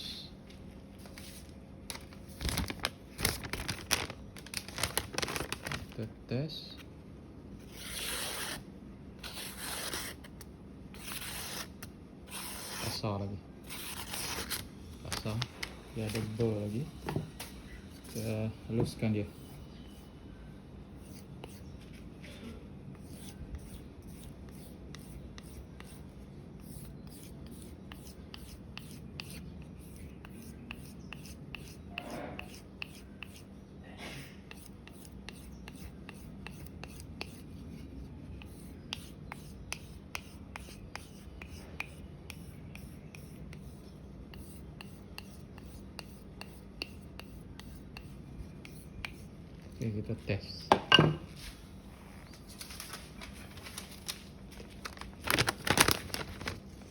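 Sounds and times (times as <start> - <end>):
knife scraping on whetstone: 7.7 - 8.6, 9.2 - 10.2, 12.3 - 13.0.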